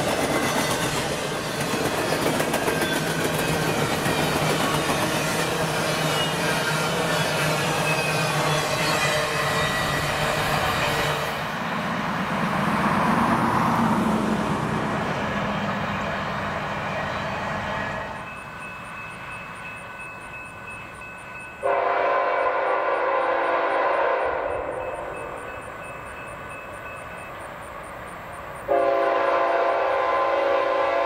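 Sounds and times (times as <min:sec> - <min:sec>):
freight train rumbling past: 0:00.0 - 0:31.0
locomotive air horn: 0:06.9 - 0:11.4, 0:21.6 - 0:25.0, 0:28.7 - 0:31.0.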